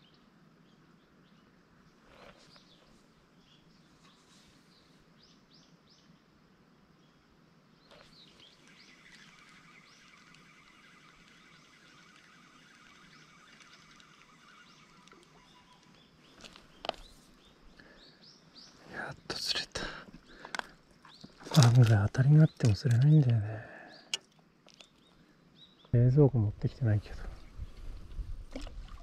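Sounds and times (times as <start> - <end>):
small birds chirping: 0.0 - 6.3, 7.0 - 29.0
bird trilling call: 7.9 - 17.6
sharp clicks: 8.0 - 17.1.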